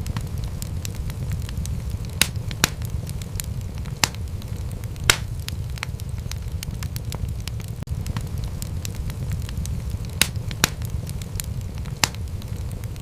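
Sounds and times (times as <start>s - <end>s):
sharp pops of fire: 0.0s - 13.0s
wood fire crackling: 0.0s - 13.0s.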